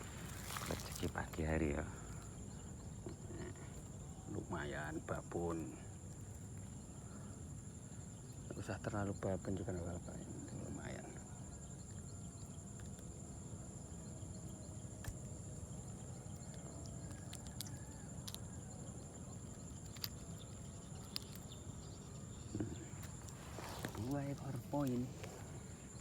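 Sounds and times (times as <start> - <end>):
insects chirring: 0.0 - 26.0
faint clicks: 16.4 - 18.5.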